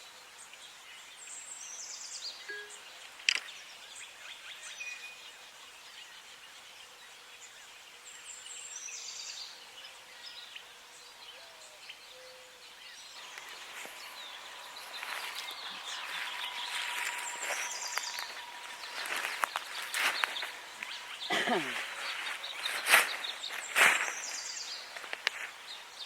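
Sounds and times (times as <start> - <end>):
faint steady tone: 2.4 - 3.2
breathy hiss: 13.2 - 26.0
high bird chirps: 13.2 - 26.0.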